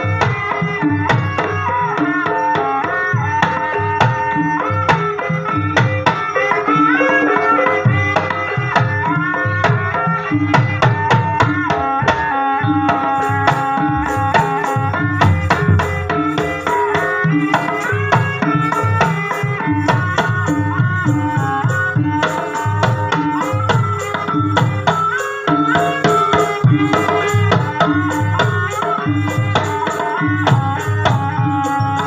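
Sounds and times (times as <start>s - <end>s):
hand drum strokes: 12.7s - 23.7s
pitched melodic notes: 13.1s - 18.8s.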